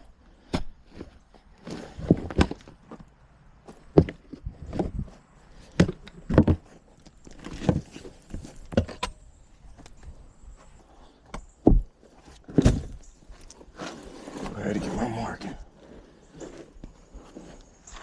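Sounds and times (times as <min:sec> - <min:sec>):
thuds and knocks: 0:11.6 - 0:13.0
faint scraping: 0:12.0 - 0:18.0.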